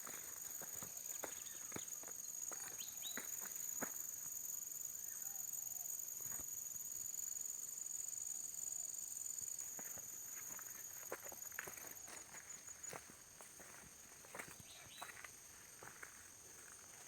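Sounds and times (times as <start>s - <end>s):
insects chirping: 0.0s - 17.0s
footsteps: 9.8s - 17.0s.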